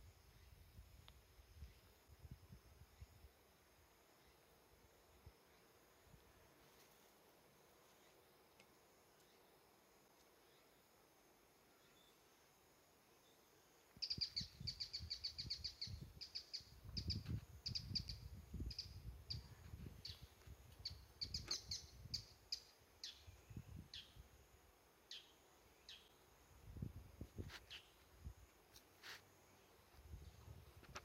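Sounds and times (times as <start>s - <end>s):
small bird chirping: 14.0s - 24.3s, 25.1s - 26.2s, 26.8s - 28.4s.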